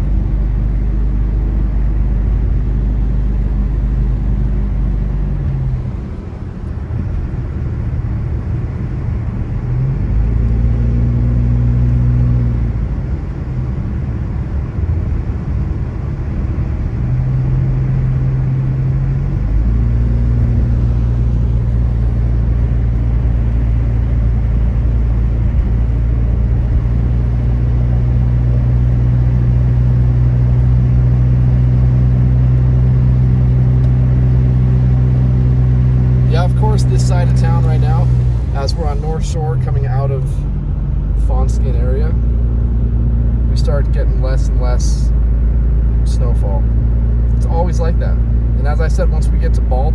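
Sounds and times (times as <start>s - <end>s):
car engine from inside car: 0.0s - 49.9s
road noise: 0.0s - 49.9s.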